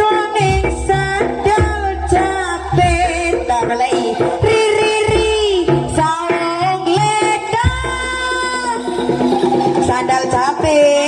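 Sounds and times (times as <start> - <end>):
high-voiced singer: 0.0 - 11.0
instrumental accompaniment: 0.0 - 11.0
steady drumming: 0.0 - 11.0.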